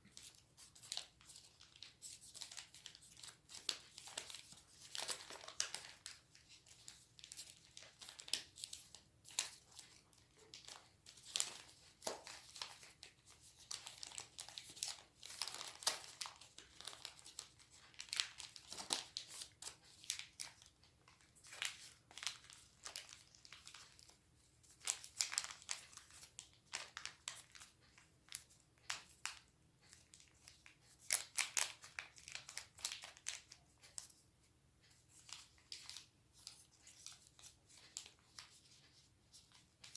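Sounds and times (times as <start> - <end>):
paper rustling and crinkling: 0.0 - 34.2, 34.9 - 39.9.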